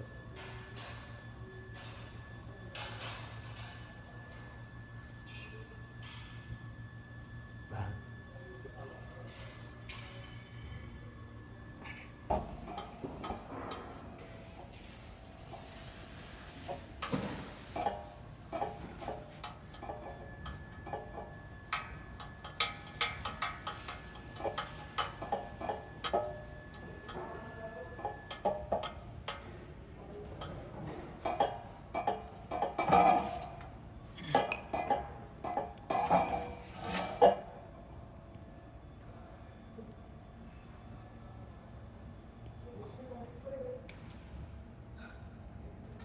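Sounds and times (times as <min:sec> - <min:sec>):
hand tools clinking on metal: 0:12.3 - 0:29.6, 0:30.2 - 0:37.3.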